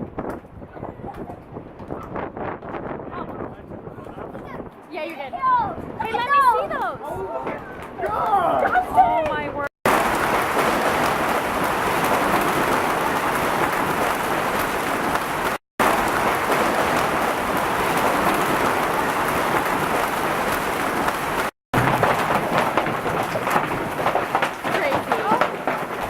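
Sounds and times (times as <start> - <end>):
hail pelting the ground: 9.8 - 26.0.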